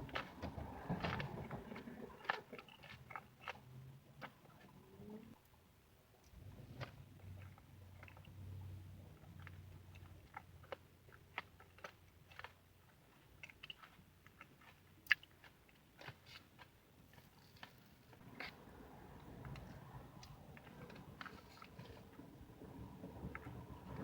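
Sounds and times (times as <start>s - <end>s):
person chewing: 9.4s - 18.6s.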